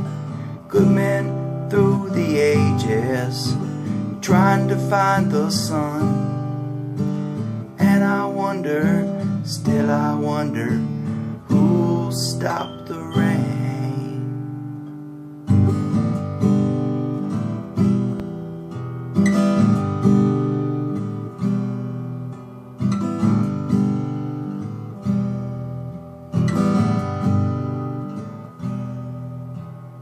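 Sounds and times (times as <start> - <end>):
acoustic guitar strumming chords: 0.0 - 30.0
person singing: 0.7 - 6.3, 7.8 - 14.4.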